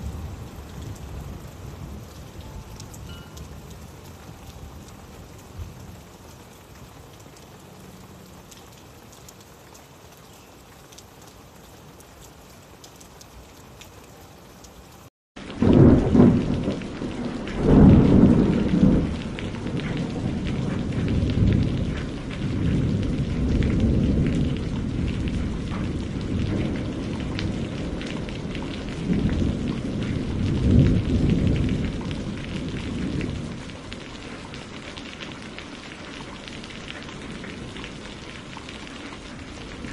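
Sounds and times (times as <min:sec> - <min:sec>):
thunder rumbling: 0:00.0 - 0:07.0, 0:15.4 - 0:34.7
rain: 0:00.0 - 0:39.9.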